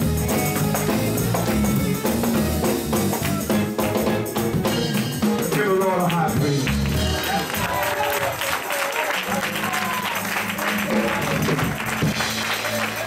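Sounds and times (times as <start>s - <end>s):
bass line: 0.0s - 7.9s, 9.3s - 13.0s
tambourine: 0.0s - 8.9s
drums: 0.0s - 13.0s
upbeat gospel band music: 0.0s - 13.0s.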